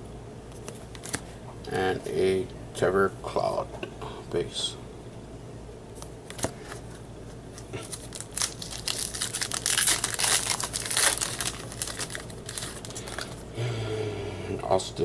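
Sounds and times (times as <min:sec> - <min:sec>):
plastic wrapper crinkling: 0:07.5 - 0:13.5.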